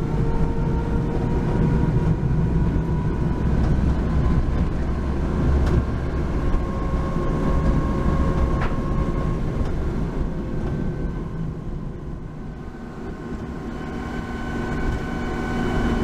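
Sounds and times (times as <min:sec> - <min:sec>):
van engine and road rumble: 0:00.0 - 0:16.0
thin steady whine: 0:08.0 - 0:16.0.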